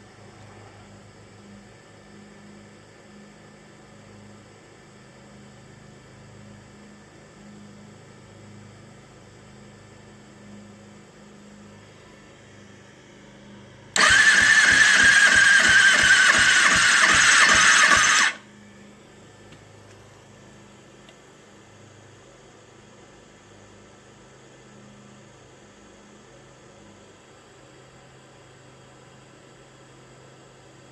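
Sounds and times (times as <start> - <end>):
motorcycle electric starter whine: 13.9 - 21.2.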